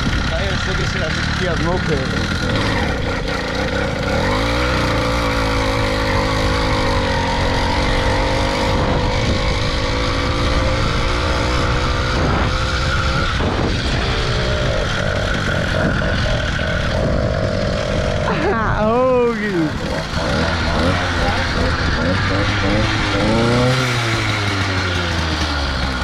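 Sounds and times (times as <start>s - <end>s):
two-stroke engine under throttle: 0.0s - 26.0s.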